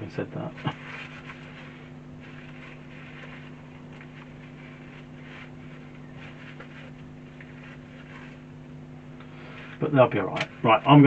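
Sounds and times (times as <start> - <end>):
low background hum: 0.0 - 11.0
rag wiping parts: 0.6 - 8.7.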